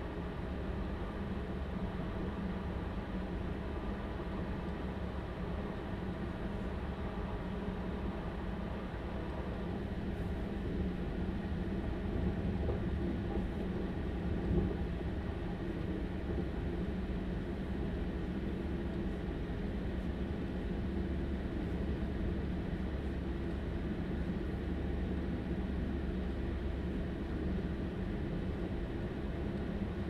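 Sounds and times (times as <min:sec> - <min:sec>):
train wheels rumbling on track: 0:08.8 - 0:20.0.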